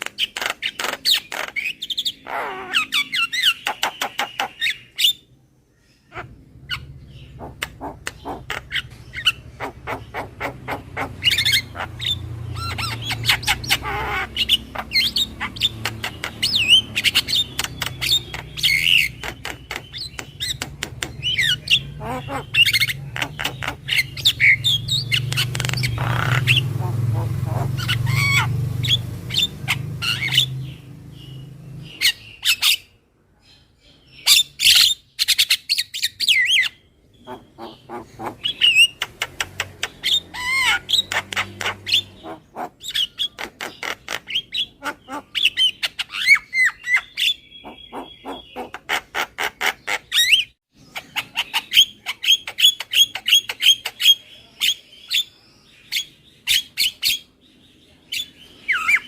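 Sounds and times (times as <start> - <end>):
bird squawking and chattering: 0.0 - 33.0, 34.2 - 57.4, 58.1 - 59.0.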